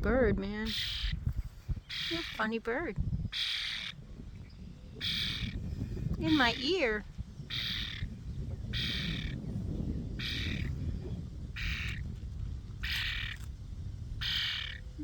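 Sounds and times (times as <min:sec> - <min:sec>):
wind rumble: 0:00.0 - 0:15.0
young bird squawking begging call: 0:00.6 - 0:01.2, 0:01.9 - 0:02.6, 0:03.3 - 0:04.0, 0:05.0 - 0:05.6, 0:06.2 - 0:08.1, 0:08.7 - 0:09.4, 0:10.2 - 0:10.7, 0:11.5 - 0:12.1, 0:12.8 - 0:13.4, 0:14.2 - 0:15.0
microphone handling noise: 0:01.1 - 0:03.3, 0:05.4 - 0:07.5, 0:08.1 - 0:14.3.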